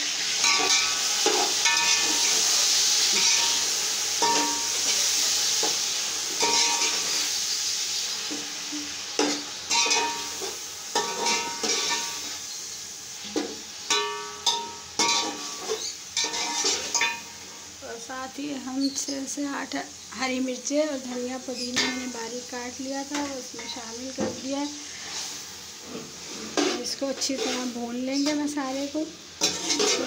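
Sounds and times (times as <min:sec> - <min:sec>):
vegetables sizzling in hot oil: 0:00.0 - 0:30.0
spoon scraping and knocking a pot: 0:29.4 - 0:30.0.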